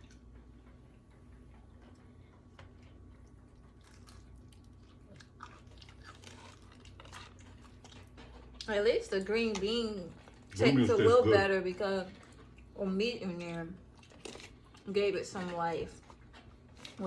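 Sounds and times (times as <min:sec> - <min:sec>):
person chewing food: 0:00.0 - 0:08.7, 0:10.1 - 0:11.0, 0:12.1 - 0:12.8, 0:13.8 - 0:14.9, 0:15.9 - 0:17.0.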